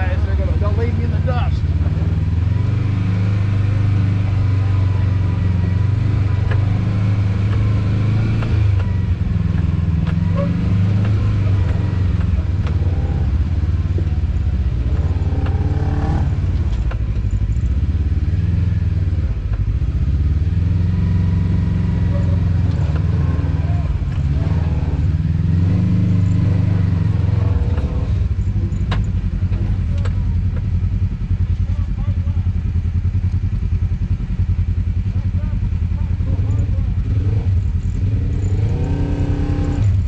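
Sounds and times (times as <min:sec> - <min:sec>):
off-road vehicle engine: 0:00.0 - 0:40.0
knocks and clatters: 0:06.2 - 0:17.8, 0:26.1 - 0:30.8.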